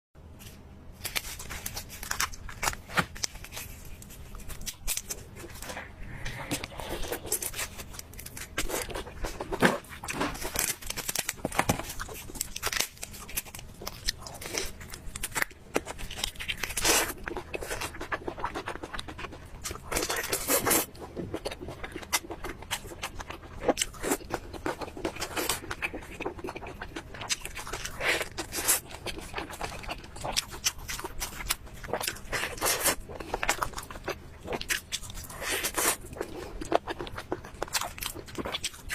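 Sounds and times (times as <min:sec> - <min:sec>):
crunchy chewing: 0:01.0 - 0:38.9.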